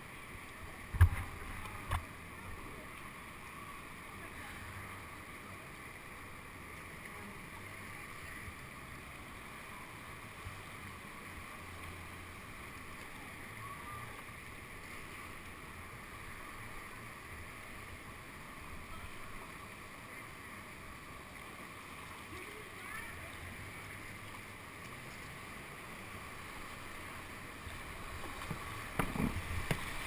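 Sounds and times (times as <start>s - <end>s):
whitewater rushing: 0.1s - 30.0s.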